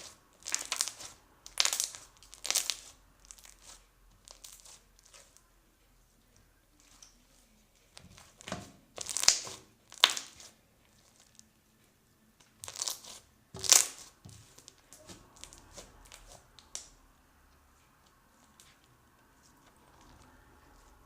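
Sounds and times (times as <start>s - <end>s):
slime crackling and popping: 0.0s - 5.4s, 7.9s - 11.4s, 12.6s - 17.0s.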